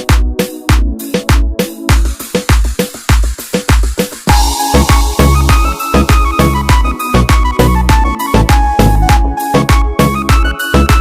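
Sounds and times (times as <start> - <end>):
dance music with deep kick drum: 0.0 - 11.0
held synth note: 4.3 - 7.1.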